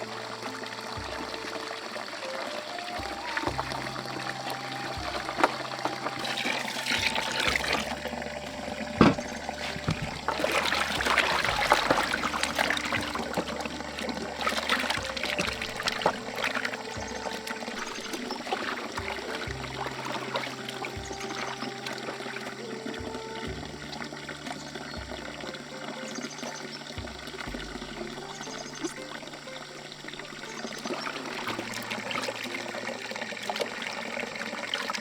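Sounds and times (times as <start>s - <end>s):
water splashing: 0.0s - 35.0s
water trickling and pouring: 0.0s - 35.0s
sharp knocks: 7.0s - 10.4s.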